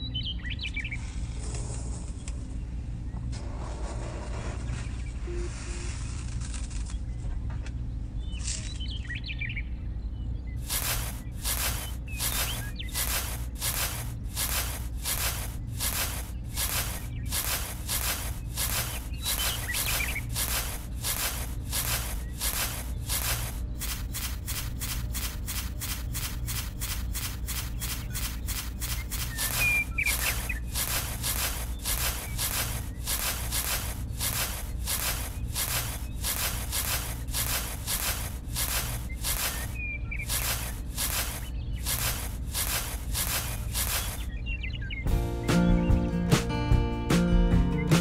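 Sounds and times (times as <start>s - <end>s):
metal spade scraping dry sand: 10.6s - 44.4s.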